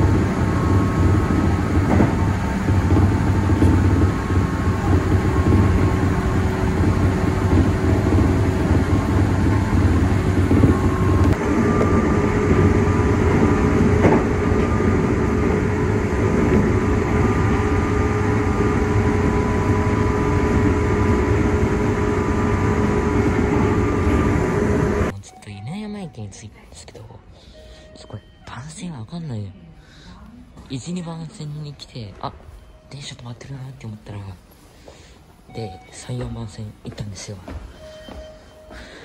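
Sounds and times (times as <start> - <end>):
train wheels rumbling on rail: 0.0 - 25.1.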